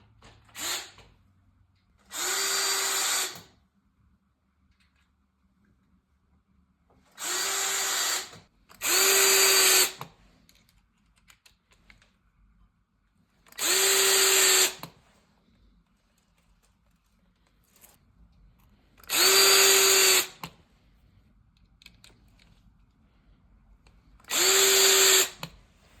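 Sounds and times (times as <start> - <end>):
power drill whining: 0.5 - 1.1, 2.0 - 3.6, 7.2 - 10.1, 13.5 - 14.9, 19.0 - 20.4, 24.3 - 25.5.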